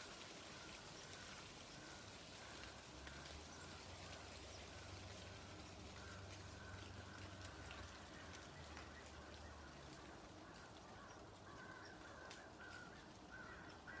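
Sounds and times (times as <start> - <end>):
faint distant bird calls: 0.1 - 14.0.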